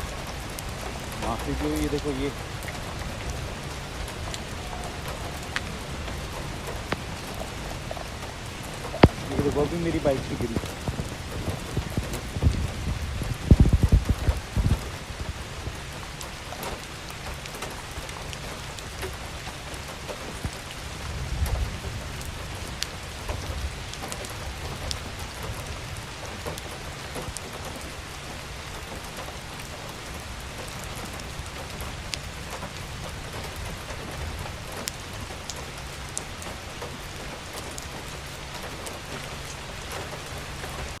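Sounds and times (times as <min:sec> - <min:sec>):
low rumbling bumps: 0:00.0 - 0:16.0.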